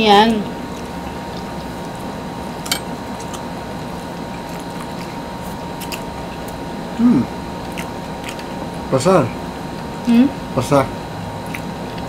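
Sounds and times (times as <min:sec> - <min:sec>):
people chewing bread: 0:00.2 - 0:12.0
person humming mm: 0:07.0 - 0:07.3.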